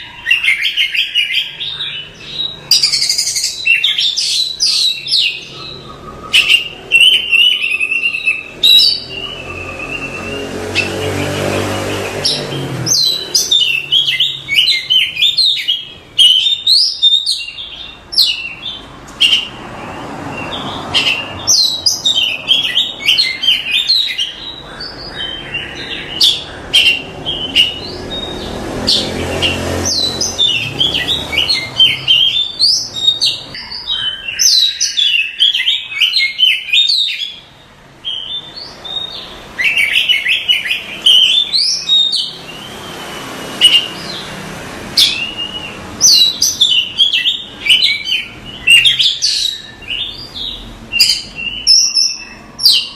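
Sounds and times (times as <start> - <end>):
songbird chirps and whistles: 0.0 - 11.0.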